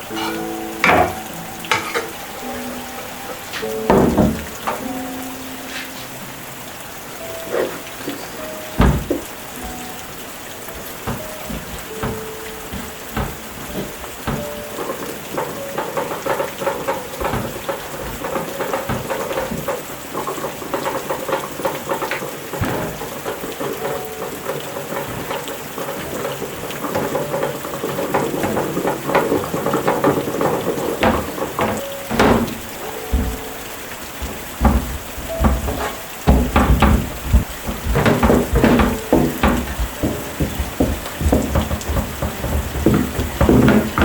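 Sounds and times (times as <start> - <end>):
sharp clicks and knocks: 0.0 - 5.2, 8.0 - 44.0
rain pattering: 0.0 - 44.0.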